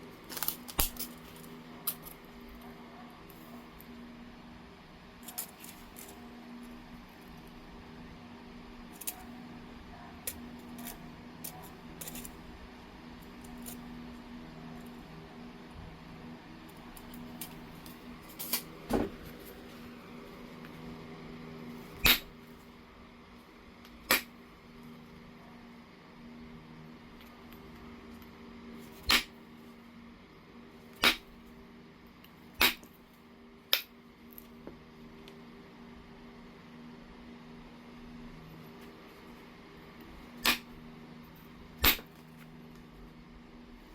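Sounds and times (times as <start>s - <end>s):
steady low hum: 0.0s - 43.9s
stone knapping strikes: 22.0s - 22.3s, 24.1s - 24.3s, 29.0s - 29.3s, 31.0s - 31.3s, 32.6s - 32.9s, 40.4s - 40.7s, 41.8s - 42.1s.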